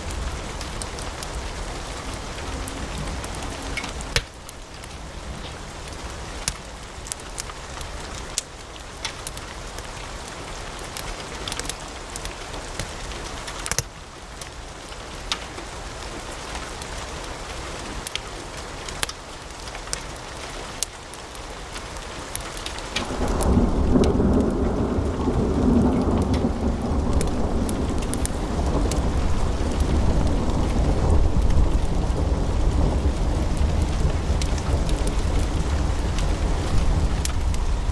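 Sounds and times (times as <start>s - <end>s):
low rumble: 0.0s - 7.0s, 23.0s - 37.9s
wood fire crackling: 0.0s - 17.4s, 18.0s - 37.9s.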